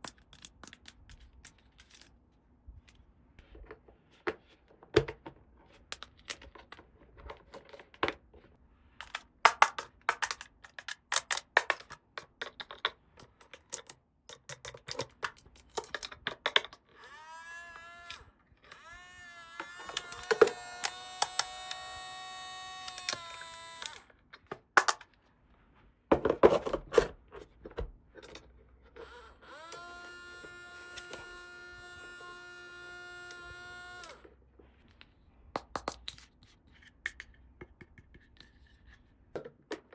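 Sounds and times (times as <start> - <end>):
plastic toy pieces clicking: 18.0 - 24.0.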